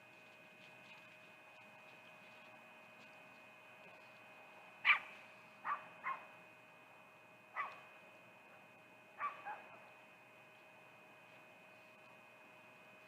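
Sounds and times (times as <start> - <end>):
faint high whine: 0.0 - 13.0
dog barking: 4.8 - 6.3, 7.6 - 7.9, 9.2 - 9.8.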